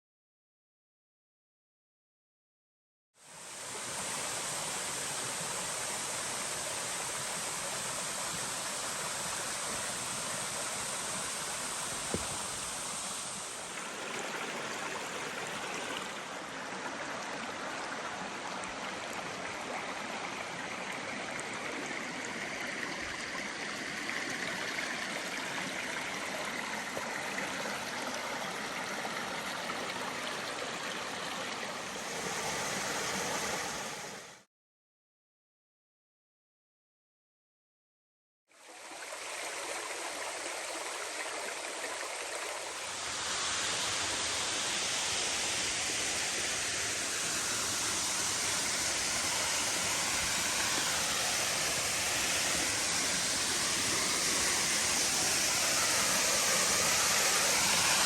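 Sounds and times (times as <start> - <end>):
stream water rushing: 3.3 - 34.4, 38.6 - 58.0.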